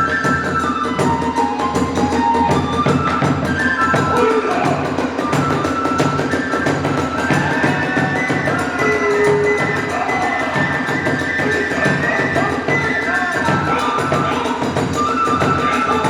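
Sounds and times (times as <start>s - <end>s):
bamboo flute long notes: 0.0s - 16.0s
drums beating: 0.0s - 16.0s.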